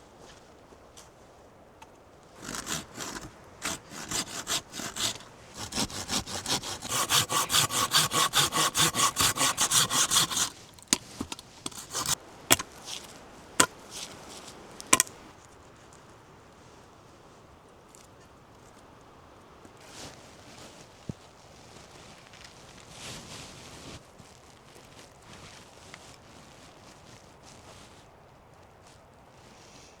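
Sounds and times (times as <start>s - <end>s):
hand saw cutting wood: 2.4s - 15.2s
sharp knocks of wood: 6.9s - 13.8s.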